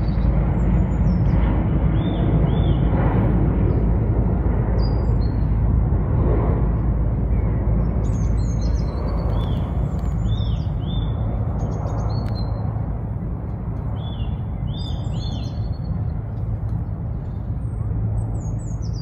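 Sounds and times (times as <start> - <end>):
small birds chirping: 0.0 - 2.9, 7.3 - 12.8, 13.8 - 19.0
low rumble: 0.0 - 19.0.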